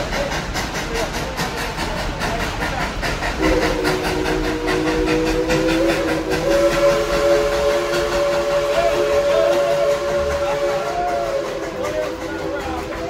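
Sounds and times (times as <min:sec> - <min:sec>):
train running rhythmic beat: 0:00.0 - 0:13.0
steam locomotive chime whistle: 0:03.4 - 0:13.0.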